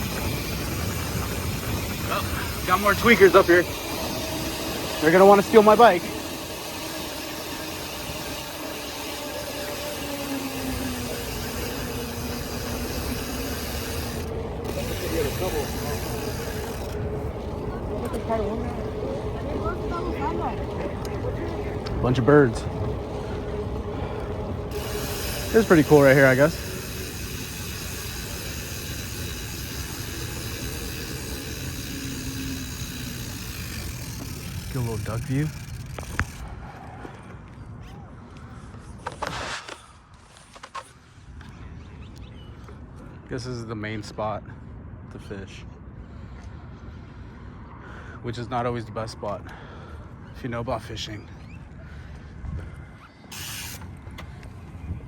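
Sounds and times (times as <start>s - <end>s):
bike tyres rubbing and rattling: 0.0s - 36.7s, 38.8s - 41.4s, 53.2s - 54.4s
wind buffeting microphone: 0.0s - 37.8s
low rumble: 12.4s - 25.4s.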